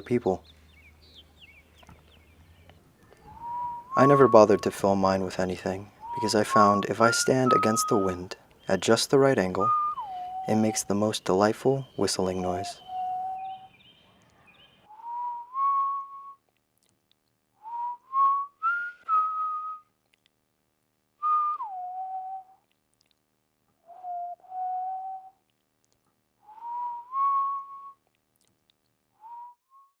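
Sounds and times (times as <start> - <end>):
person whistling: 3.2 - 4.8, 6.0 - 8.3, 9.6 - 10.7, 14.9 - 16.4, 17.6 - 19.9, 21.2 - 22.6, 23.9 - 25.4, 26.5 - 28.0, 29.2 - 30.0.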